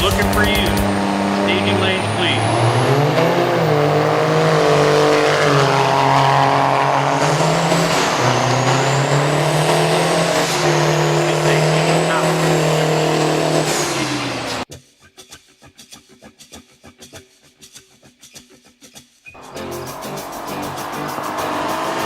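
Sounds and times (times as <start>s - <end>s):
car engine running hard: 0.0s - 14.7s, 19.4s - 22.0s.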